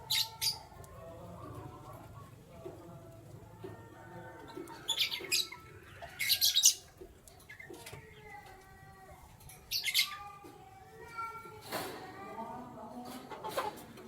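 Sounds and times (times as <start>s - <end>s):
canaries chirping: 0.0s - 10.6s.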